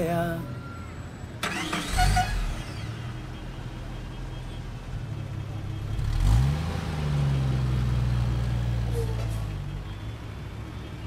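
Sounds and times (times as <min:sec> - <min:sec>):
car engine running and revving: 0:01.4 - 0:09.0.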